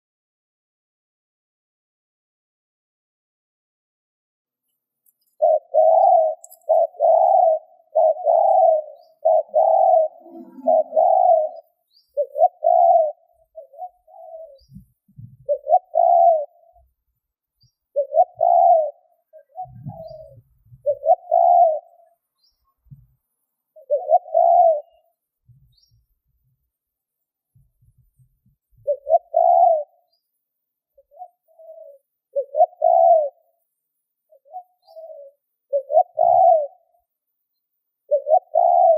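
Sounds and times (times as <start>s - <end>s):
dove cooing: 5.4s - 16.9s, 17.9s - 22.2s, 23.8s - 25.1s, 28.8s - 30.2s, 31.0s - 33.6s, 34.3s - 37.0s, 38.1s - 38.9s.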